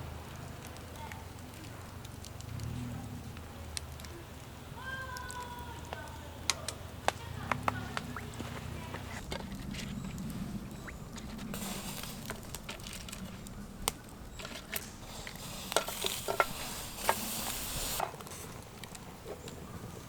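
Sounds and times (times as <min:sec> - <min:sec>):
food sizzling: 0:07.2 - 0:19.4.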